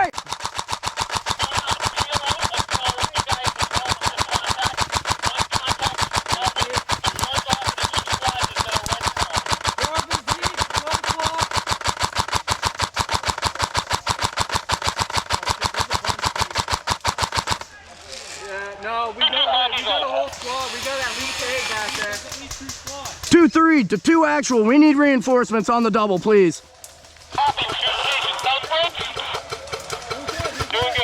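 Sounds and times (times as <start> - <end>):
airsoft gun full-auto fire: 0.0 - 17.8, 20.3 - 23.4, 27.2 - 31.0.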